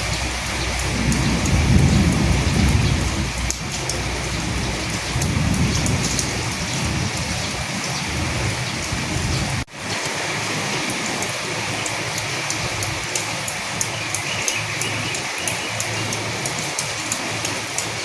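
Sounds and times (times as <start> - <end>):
low thunder rumbling: 0.0 - 9.7
steady rain: 0.0 - 18.0.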